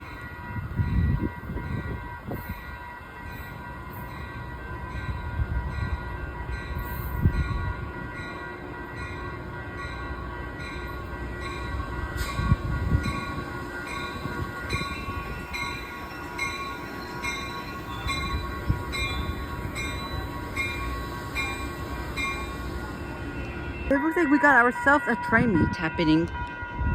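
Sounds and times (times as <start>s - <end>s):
train rail rumble: 0.0s - 26.9s.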